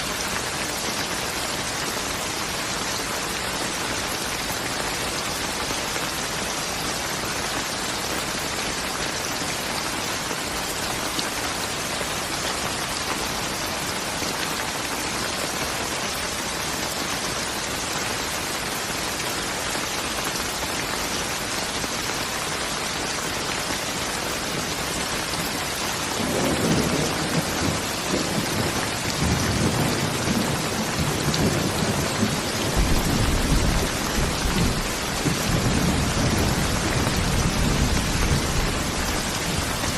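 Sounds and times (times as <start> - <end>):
heavy rain falling: 0.0 - 39.9
rolling thunder: 26.2 - 39.9.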